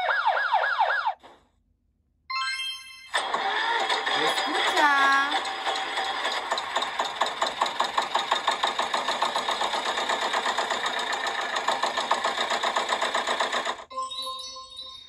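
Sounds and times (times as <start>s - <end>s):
vehicle engine pulsing fast: 3.4s - 13.9s.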